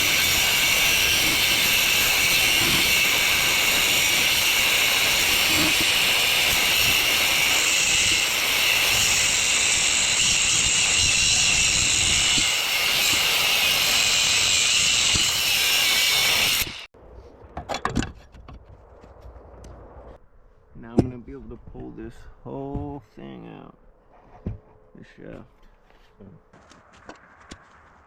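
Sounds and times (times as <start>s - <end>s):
power tool cutting steel: 0.0s - 16.9s.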